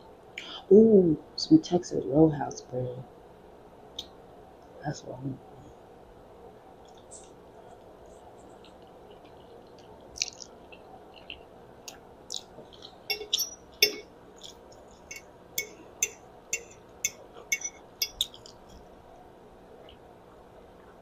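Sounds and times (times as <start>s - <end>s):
chewing spaghetti: 6.8s - 13.1s
wet mouth clicks and smacks: 8.6s - 13.0s.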